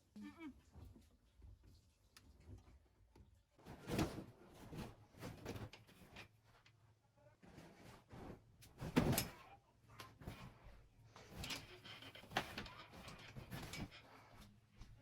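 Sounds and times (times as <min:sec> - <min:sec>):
objects being handled: 0:10.0 - 0:15.0.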